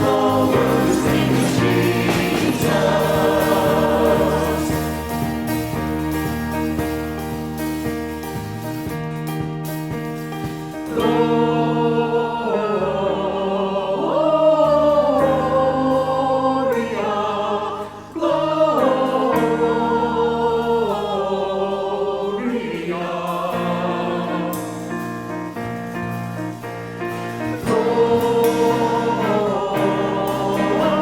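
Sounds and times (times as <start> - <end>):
choir singing held notes: 0.0 - 6.2, 10.8 - 25.9, 26.5 - 31.0.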